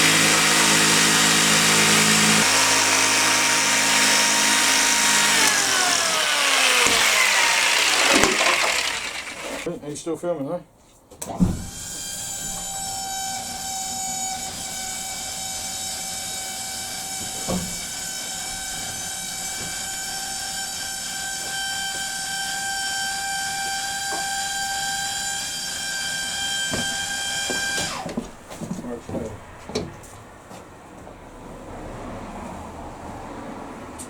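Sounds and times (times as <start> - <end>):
power tool motor whining: 0.0 - 9.7, 11.7 - 28.2.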